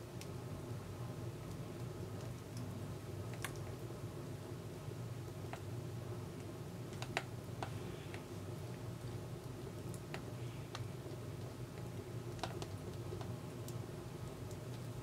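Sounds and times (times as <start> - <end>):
firewood crackling and popping: 6.3 - 15.0.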